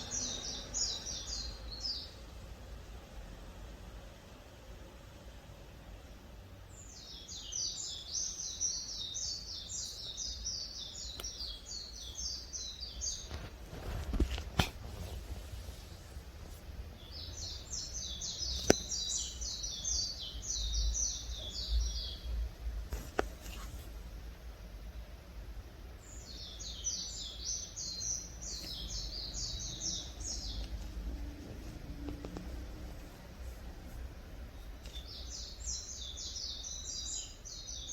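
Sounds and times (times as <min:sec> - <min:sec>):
songbird singing: 0:00.0 - 0:02.6, 0:05.9 - 0:24.0, 0:24.6 - 0:37.9.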